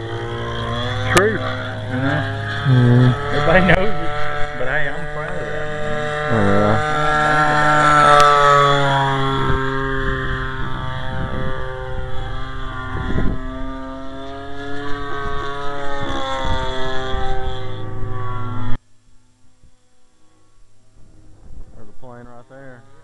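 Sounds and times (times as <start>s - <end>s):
wind on microphone: 0.0s - 18.8s, 21.0s - 22.8s
model plane engine flying: 0.0s - 23.0s.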